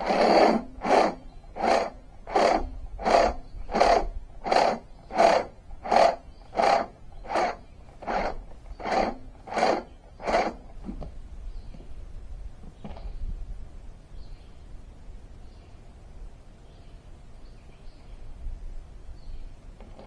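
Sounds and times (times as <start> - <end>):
rhythmic rasping strokes: 0.0 - 10.8.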